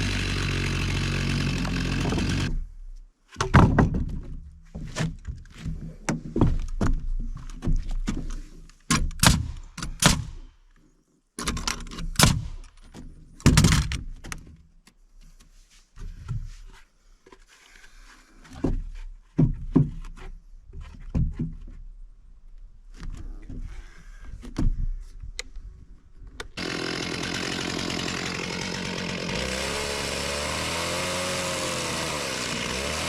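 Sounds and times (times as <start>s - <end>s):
heavy wooden thunks: 3.4s - 8.3s.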